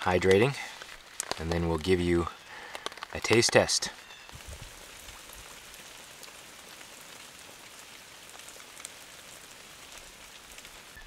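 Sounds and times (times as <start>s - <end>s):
rain drops tapping on shelter: 0.0s - 11.0s.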